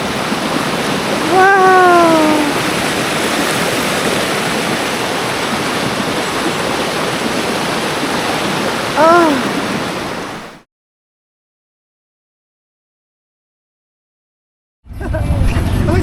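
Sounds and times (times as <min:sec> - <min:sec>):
mountain stream rushing: 0:00.0 - 0:10.6.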